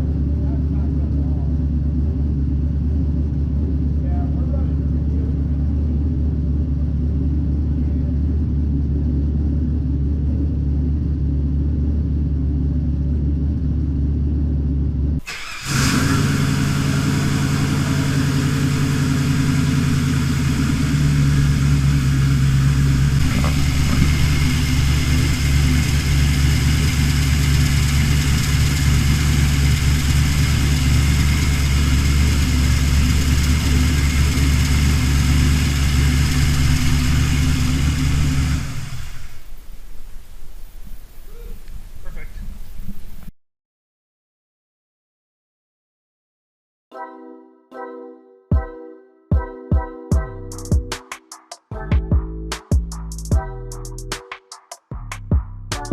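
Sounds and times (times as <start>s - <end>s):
car engine idling: 0.0s - 43.3s.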